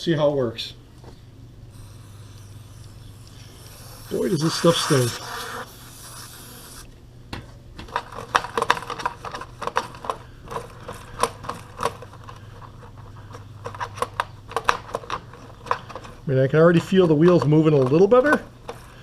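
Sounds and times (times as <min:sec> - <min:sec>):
aerosol can hissing: 0:01.7 - 0:06.9.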